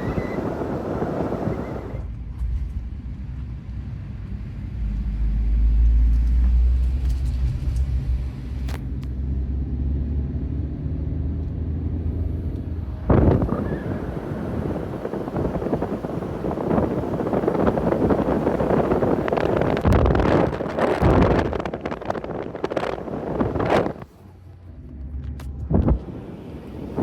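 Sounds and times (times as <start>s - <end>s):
wind buffeting microphone: 0.0s - 3.3s, 12.0s - 24.1s, 25.1s - 27.0s
car driving rumble: 0.0s - 27.0s.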